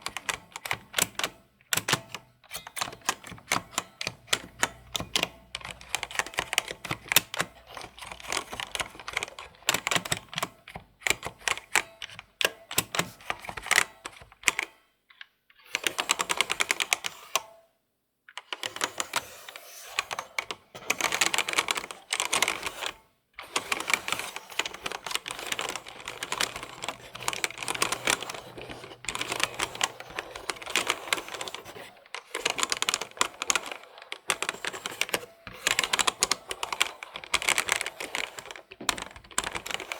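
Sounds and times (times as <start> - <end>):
computer keyboard typing: 0.0 - 14.7, 18.4 - 39.9.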